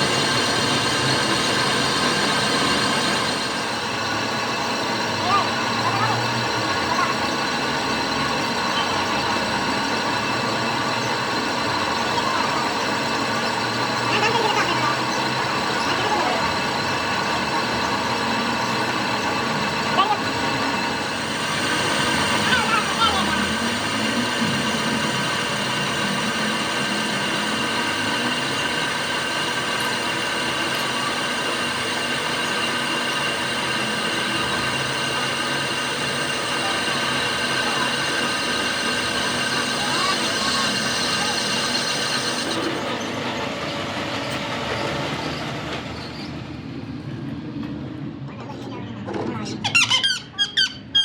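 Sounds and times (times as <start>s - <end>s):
machine hum: 0.0s - 47.7s
engine running steadily: 0.0s - 49.4s.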